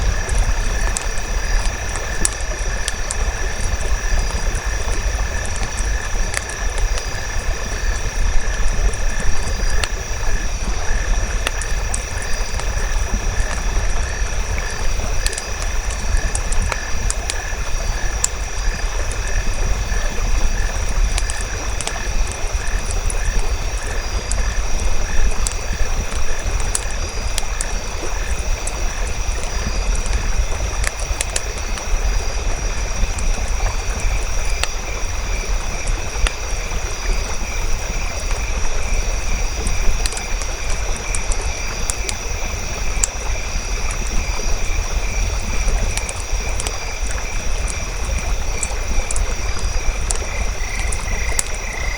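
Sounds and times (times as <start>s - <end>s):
campfire crackling and popping: 0.0s - 51.9s
high insect drone: 0.0s - 51.9s.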